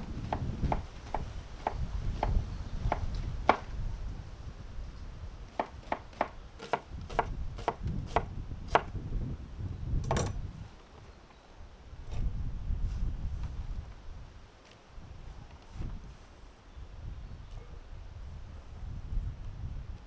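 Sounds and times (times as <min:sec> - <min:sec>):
knife chopping on wooden board: 0:00.1 - 0:03.7, 0:05.5 - 0:08.9
knife scraping board: 0:05.6 - 0:08.8.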